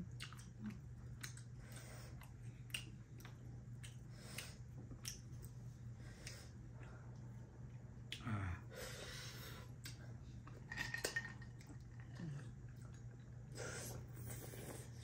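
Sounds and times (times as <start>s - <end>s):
people chewing: 0.0s - 8.5s, 11.6s - 15.0s
steady low hum: 0.0s - 15.0s.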